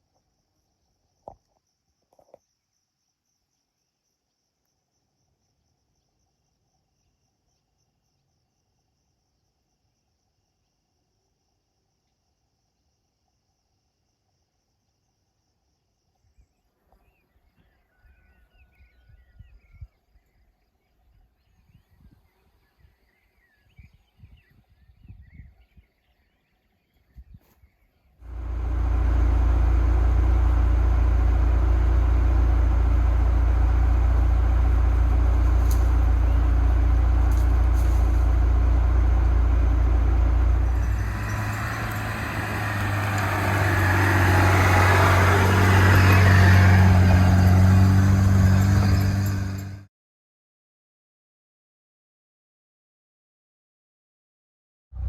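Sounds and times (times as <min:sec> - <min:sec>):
faint birds chirping: 0:00.0 - 0:49.8
car engine running: 0:28.3 - 0:49.9.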